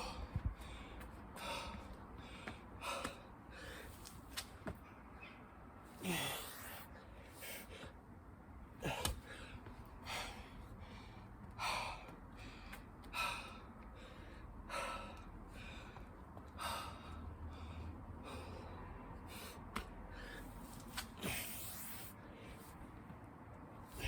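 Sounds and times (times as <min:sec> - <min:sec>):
person breathing hard: 0:00.0 - 0:04.1, 0:06.0 - 0:08.0, 0:08.8 - 0:22.8.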